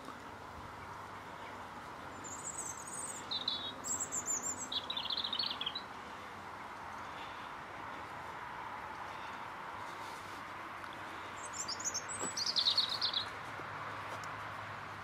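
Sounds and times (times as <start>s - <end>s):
outdoor background noise: 0.0s - 15.0s
songbirds chirping: 0.0s - 15.0s
bird trilling: 11.4s - 13.3s.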